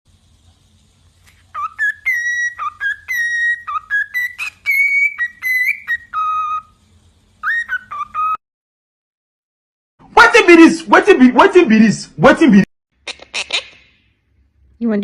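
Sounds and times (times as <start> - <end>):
parrot whistling a tune: 1.5 - 6.8, 7.4 - 8.4.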